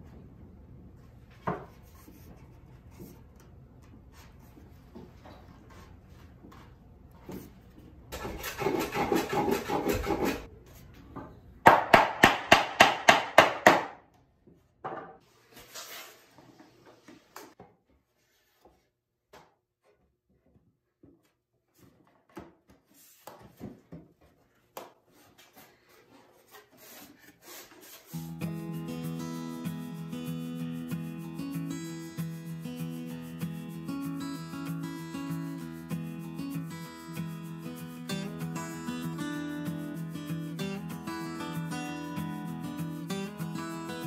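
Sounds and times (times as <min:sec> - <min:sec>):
rhythmic scraping on wood: 0:08.2 - 0:10.5, 0:25.1 - 0:44.0.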